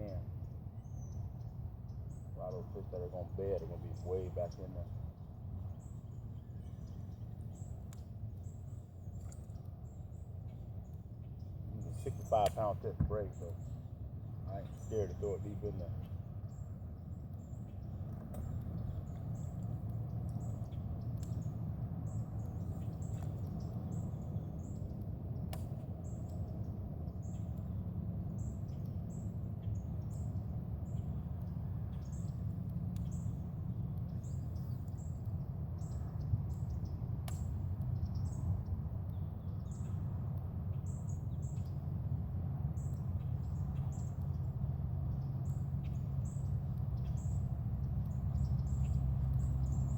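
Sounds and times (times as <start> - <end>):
birds chirping: 0.0 - 49.9
steady low rumble: 0.0 - 49.9.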